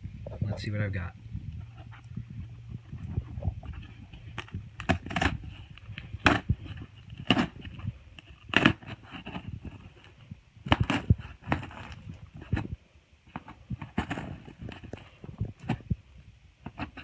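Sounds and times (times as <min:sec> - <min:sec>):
cardboard box being opened: 0:03.7 - 0:15.9.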